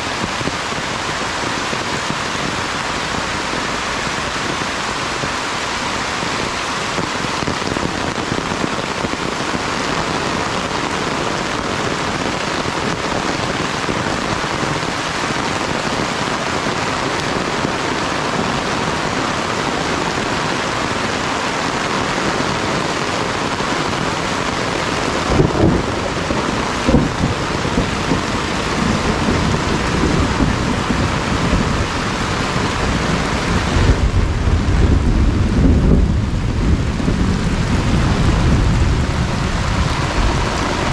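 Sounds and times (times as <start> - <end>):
heavy rain falling: 0.0 - 40.9
low rumbles of thunder: 25.0 - 40.9.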